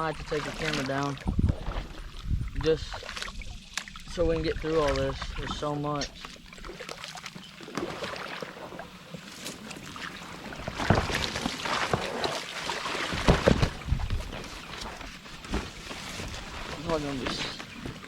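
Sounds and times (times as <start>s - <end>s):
hull scraping lily pads: 0.0s - 18.0s
water splashing: 0.0s - 18.0s
kayak knocks: 10.6s - 18.0s.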